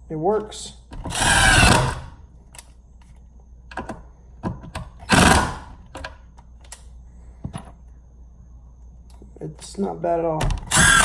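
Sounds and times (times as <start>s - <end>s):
impact driver driving screw: 1.1s - 2.1s, 10.7s - 11.0s.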